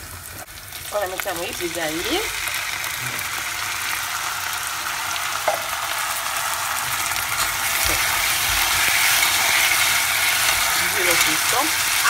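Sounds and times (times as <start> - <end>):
food sizzling in a pot: 0.0 - 12.0
spoon stirring peas: 7.4 - 12.0.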